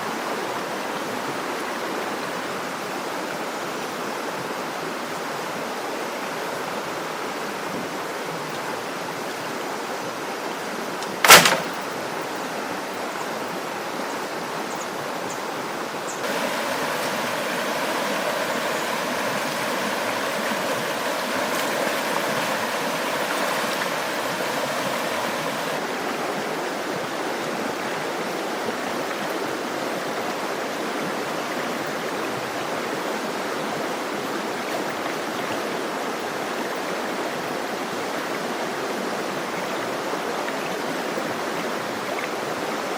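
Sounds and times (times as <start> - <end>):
running water rushing: 0.0 - 42.9
sharp loud knock: 11.2 - 11.8.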